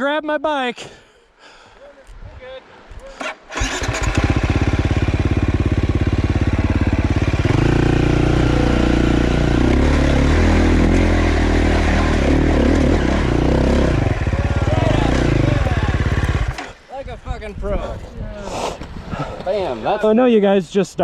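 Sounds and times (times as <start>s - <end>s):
dirt bike engine revving: 3.2s - 16.8s.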